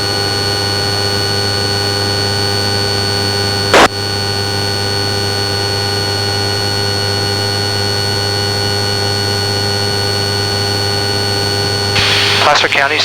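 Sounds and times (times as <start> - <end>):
intercom hum with fixed tones: 0.0 - 13.0
aircraft cabin drone: 10.6 - 13.0.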